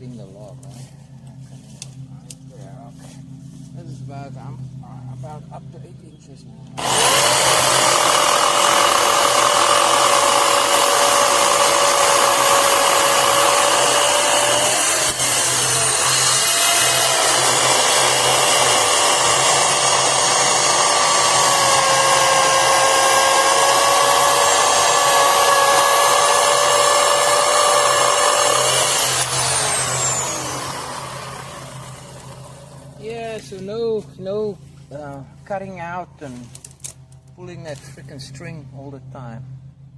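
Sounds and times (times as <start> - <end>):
electric chainsaw cutting log: 6.8 - 33.2.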